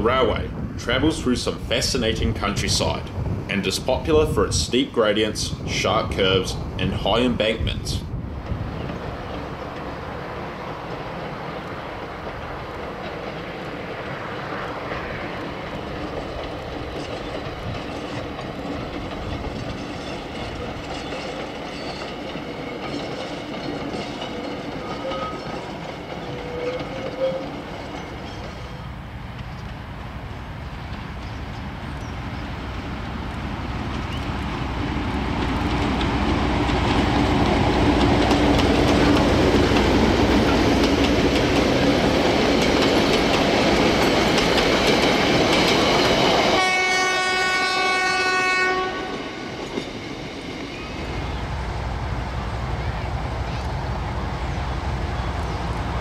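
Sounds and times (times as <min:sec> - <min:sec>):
diesel locomotive rumbling: 0:00.0 - 0:56.0
wheels clicking over rail joints: 0:08.4 - 0:46.8.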